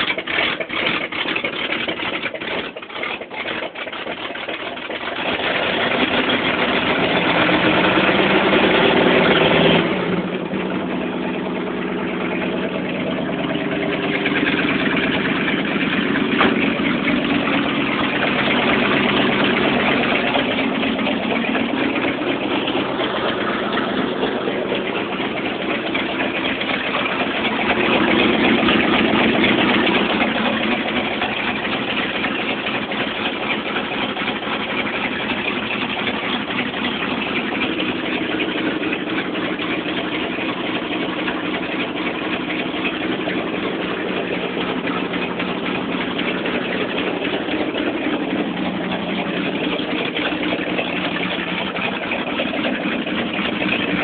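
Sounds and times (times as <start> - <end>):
pickup truck engine idling: 0.0 - 54.0.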